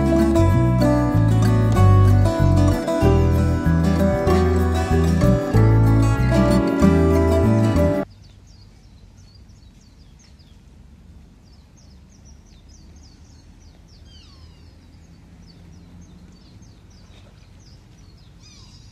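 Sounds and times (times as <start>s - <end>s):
birds chirping: 11.4s - 18.9s.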